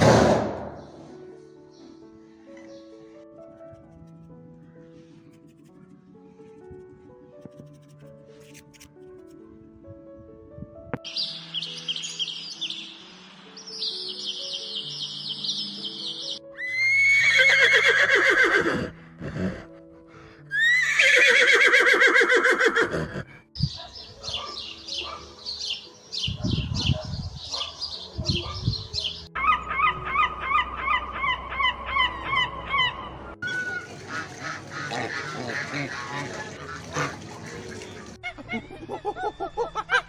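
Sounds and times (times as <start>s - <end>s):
light background music: 0.0s - 40.0s
farmyard fowl calling: 29.4s - 38.4s.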